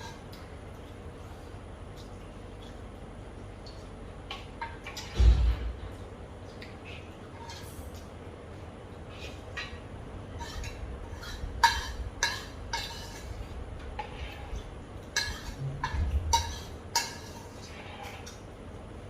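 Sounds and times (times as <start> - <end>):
cutlery clinking against a bowl: 3.6 - 5.2, 6.5 - 8.1, 9.2 - 18.4.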